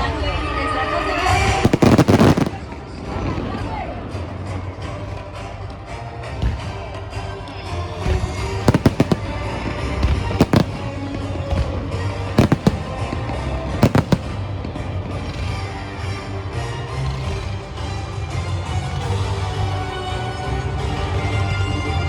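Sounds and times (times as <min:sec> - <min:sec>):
fireworks bangs: 0:01.3 - 0:03.3, 0:08.0 - 0:15.6.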